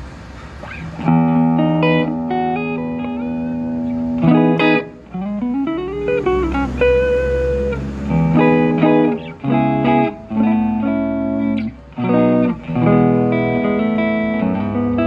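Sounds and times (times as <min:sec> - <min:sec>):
electric guitar chords: 0:00.6 - 0:15.0.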